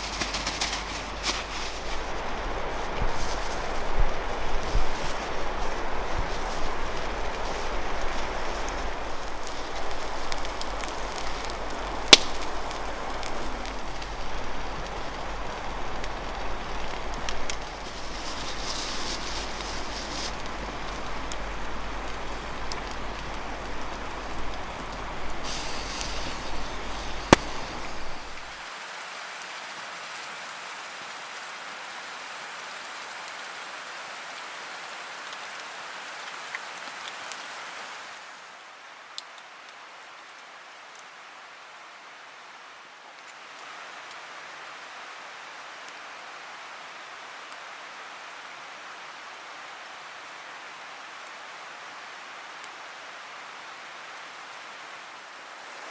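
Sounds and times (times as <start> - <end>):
fire crackling: 0.0 - 28.7
food sizzling over campfire: 0.0 - 55.9
sharp pop: 12.1 - 12.8, 25.5 - 28.4.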